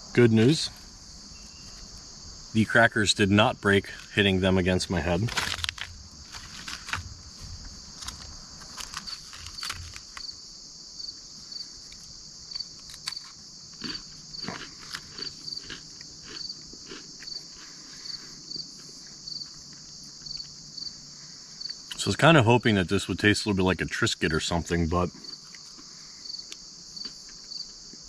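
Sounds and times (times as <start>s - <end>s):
insect chorus chirping: 0.0s - 28.0s
crackers being chewed: 5.2s - 7.2s, 7.9s - 10.4s, 11.8s - 20.7s, 25.1s - 28.0s.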